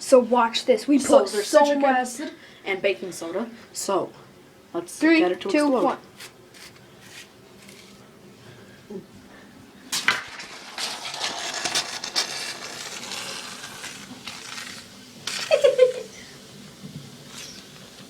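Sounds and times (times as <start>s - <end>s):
fizzing reaction hissing: 9.9s - 18.0s.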